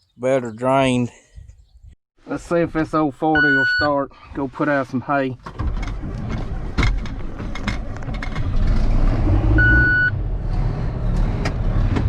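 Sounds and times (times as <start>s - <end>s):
short high beep: 3.4s - 3.9s
tractor engine running: 5.5s - 10.0s.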